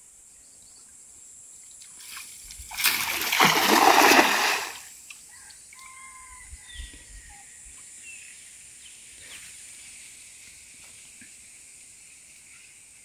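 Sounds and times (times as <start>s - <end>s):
steady high-pitched hiss: 0.0s - 2.8s, 6.5s - 13.0s.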